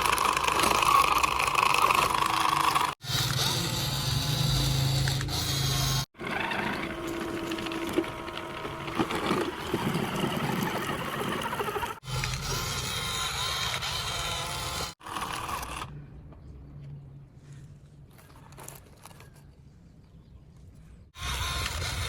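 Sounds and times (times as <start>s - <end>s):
toy vehicle motor whirring: 0.0s - 15.9s, 21.2s - 22.0s.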